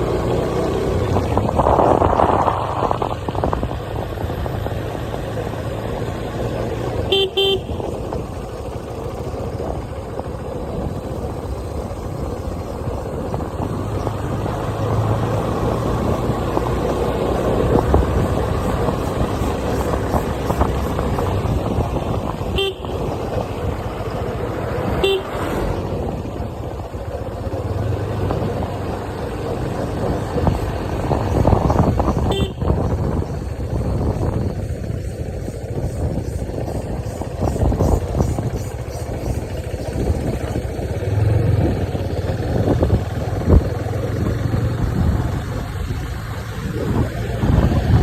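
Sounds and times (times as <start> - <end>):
vehicle and road noise: 0.0 - 48.0
car horn toots: 7.0 - 8.2, 22.4 - 23.3, 24.9 - 25.4, 32.1 - 32.9.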